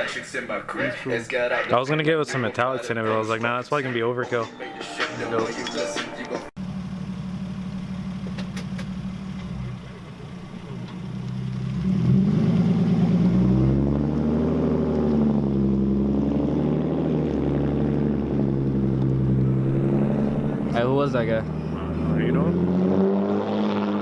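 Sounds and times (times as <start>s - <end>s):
car engine revving: 6.6s - 24.0s.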